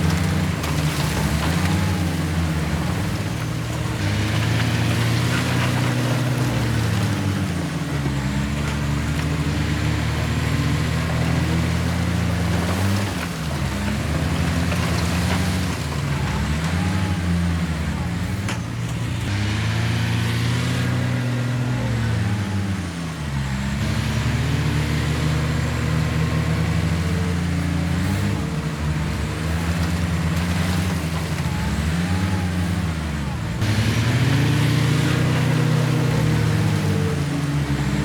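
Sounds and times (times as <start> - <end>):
heavy diesel engine under load: 0.0 - 38.0.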